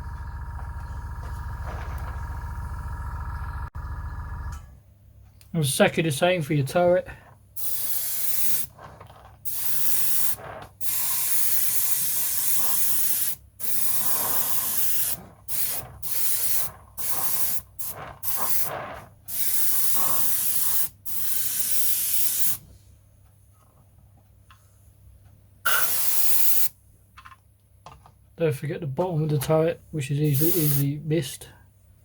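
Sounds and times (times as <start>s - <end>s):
airbrush spraying hiss: 7.6s - 8.8s, 9.5s - 22.6s, 25.7s - 26.7s, 30.2s - 31.0s.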